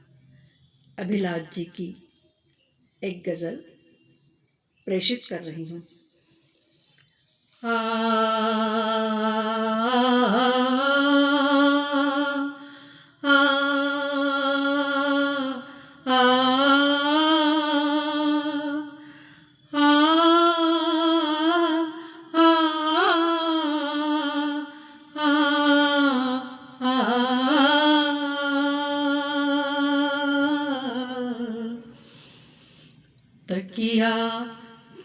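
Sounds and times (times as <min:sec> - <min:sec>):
woman singing unaccompanied: 0:07.6 - 0:32.4, 0:33.5 - 0:35.0
singer breathing: 0:12.6 - 0:13.2, 0:19.0 - 0:19.5, 0:31.8 - 0:33.2.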